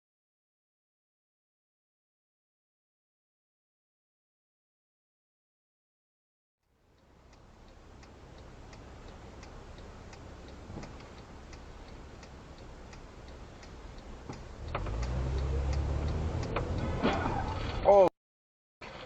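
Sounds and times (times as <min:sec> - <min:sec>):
turn signal ticking: 0:06.7 - 0:17.9
engine and road rumble: 0:06.7 - 0:18.1.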